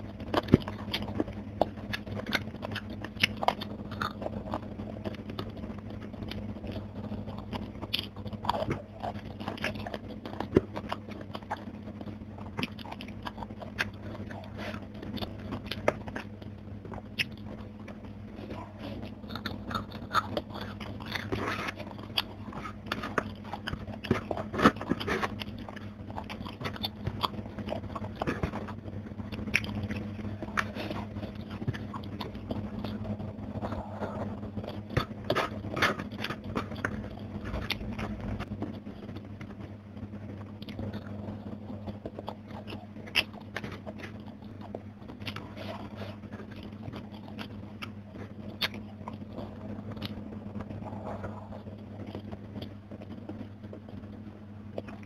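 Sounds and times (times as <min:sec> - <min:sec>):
crunchy chewing: 0:00.0 - 0:55.0
steady low hum: 0:00.0 - 0:55.0.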